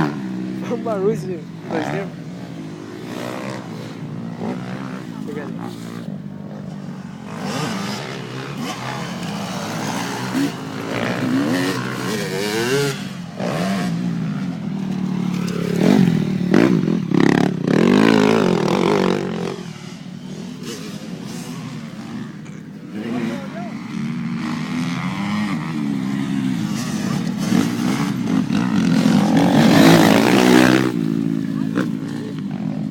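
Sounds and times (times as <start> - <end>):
motocross bike engines revving: 0.0 - 32.9.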